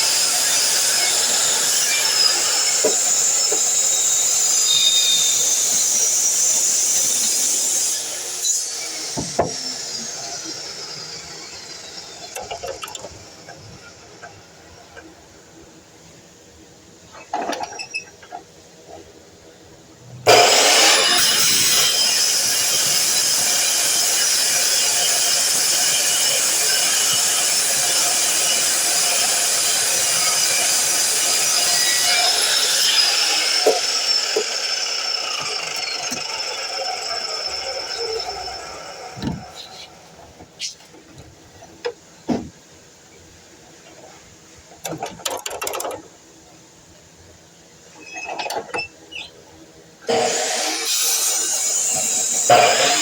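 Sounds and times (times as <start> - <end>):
miter saw whining: 20.2 - 40.0, 50.1 - 53.0.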